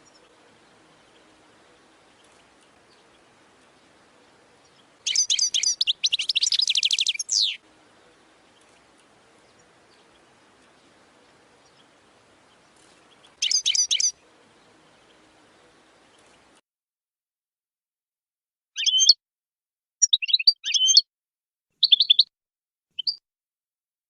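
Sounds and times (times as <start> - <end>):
goldfinch twittering song: 0.0 - 16.6, 18.7 - 19.2, 20.0 - 21.0, 21.8 - 22.3, 23.0 - 23.2.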